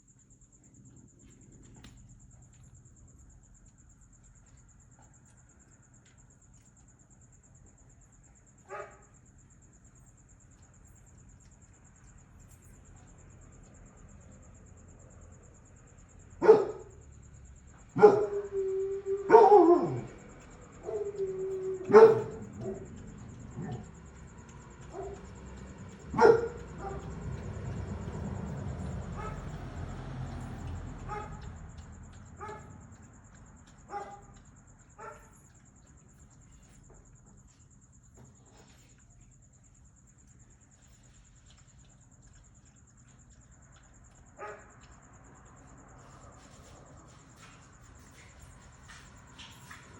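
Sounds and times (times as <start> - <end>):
dog barking: 8.6 - 9.2, 16.4 - 17.0, 17.9 - 20.2, 20.8 - 23.9, 24.8 - 25.3, 26.1 - 27.1, 29.1 - 29.6, 31.0 - 31.5, 32.4 - 32.8, 33.9 - 34.4, 35.0 - 35.4, 44.4 - 44.8.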